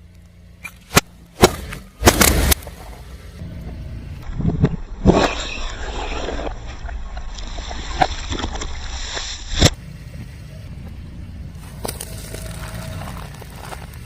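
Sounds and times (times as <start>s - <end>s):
sharp cracks: 0.6s - 2.8s
tyre rolling over objects: 11.6s - 14.0s.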